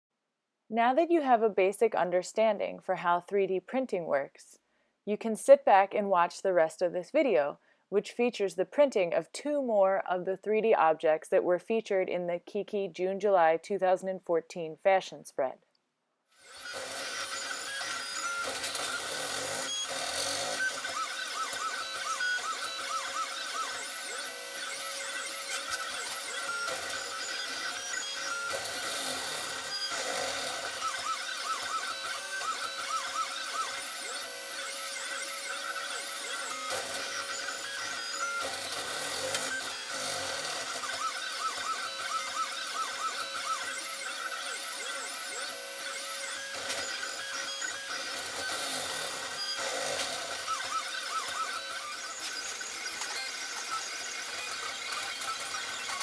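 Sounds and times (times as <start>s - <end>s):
printer motors whining: 16.4s - 56.0s.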